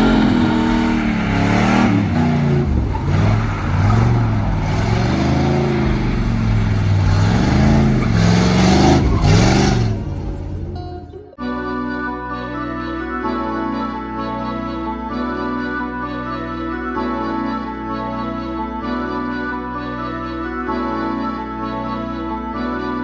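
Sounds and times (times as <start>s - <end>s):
vehicle engine revving: 0.0s - 10.8s.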